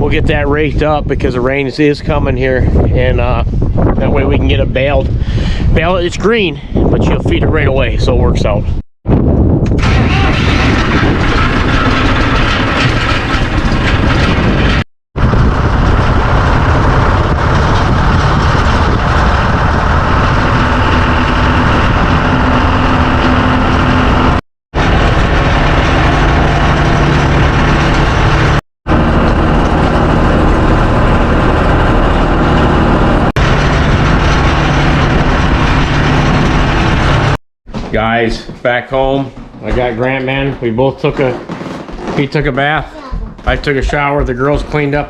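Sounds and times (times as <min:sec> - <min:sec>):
tractor engine running: 0:09.7 - 0:38.0.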